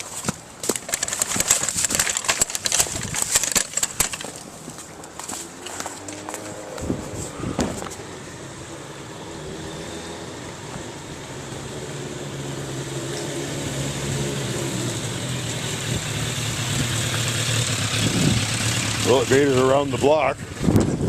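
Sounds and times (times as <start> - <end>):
motorcycle engine approaching: 4.7 - 21.0.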